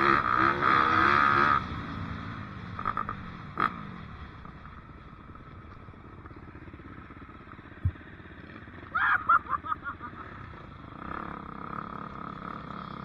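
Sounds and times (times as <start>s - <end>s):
dirt bike engine revving: 0.0s - 3.7s
short low thump: 7.8s - 8.0s.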